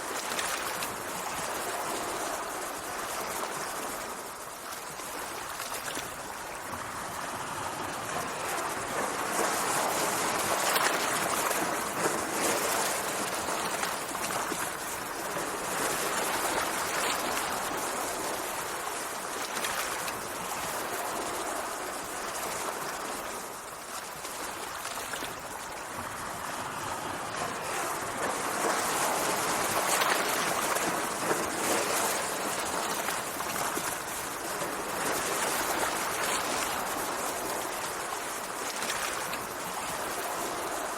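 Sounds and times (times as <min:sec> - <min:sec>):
sea water washing and rushing: 0:00.0 - 0:40.9.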